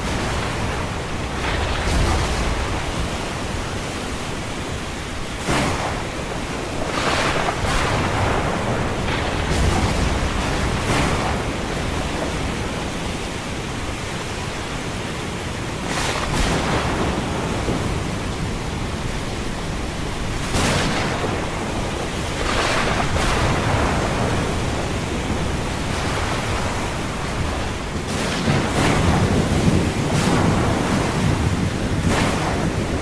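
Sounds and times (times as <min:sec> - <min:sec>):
ocean waves breaking: 0:00.0 - 0:33.0
rain: 0:00.0 - 0:33.0.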